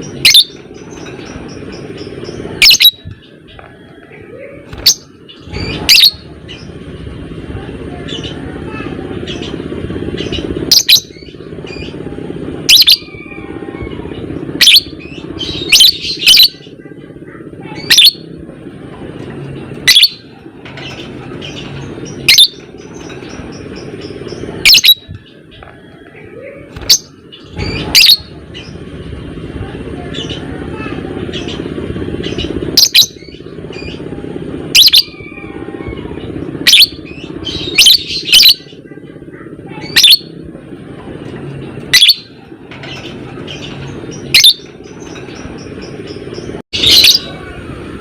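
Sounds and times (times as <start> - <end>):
soft bird chattering: 0.0 - 6.8, 7.9 - 18.4, 19.2 - 28.9, 29.9 - 40.4, 41.6 - 47.7
steady low hum: 0.0 - 48.0
lovebird shrill calls: 0.2 - 0.5, 2.6 - 3.0, 22.2 - 22.6, 24.6 - 25.1, 26.8 - 28.2, 39.9 - 40.3, 44.2 - 44.7.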